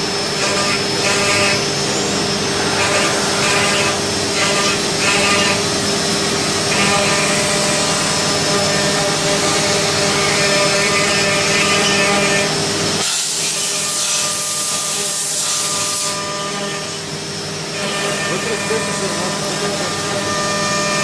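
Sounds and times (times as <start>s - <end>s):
machining center whine: 0.0s - 13.0s, 15.7s - 21.0s
loud cutting noise: 0.0s - 21.0s
high hiss: 1.7s - 6.6s.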